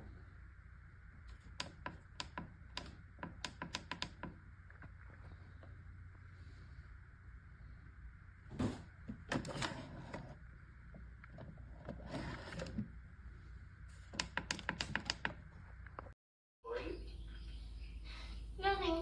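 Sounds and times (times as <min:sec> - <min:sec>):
low steady hum: 0:00.0 - 0:14.2, 0:15.2 - 0:19.0
knocks and clicks: 0:01.3 - 0:05.0.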